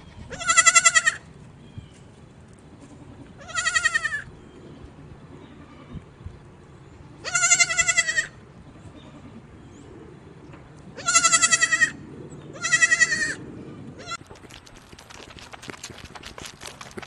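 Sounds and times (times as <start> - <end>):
young goat bleating: 0.2 - 1.2, 2.9 - 4.3, 7.2 - 9.4, 11.0 - 13.4.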